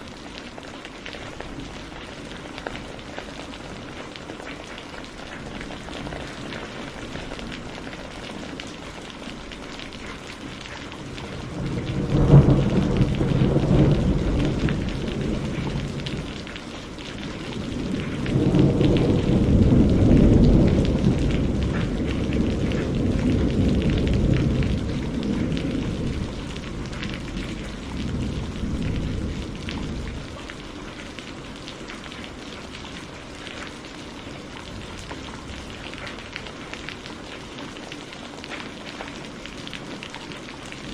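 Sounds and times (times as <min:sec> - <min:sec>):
steady rain: 0:00.0 - 0:40.9
thunder rumbling: 0:05.2 - 0:33.7.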